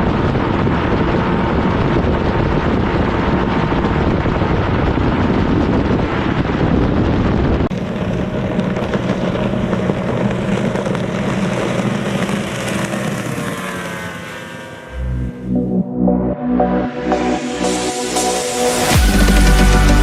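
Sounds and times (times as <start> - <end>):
wind noise on microphone: 0.0 - 13.6
outboard motor running: 0.0 - 15.8.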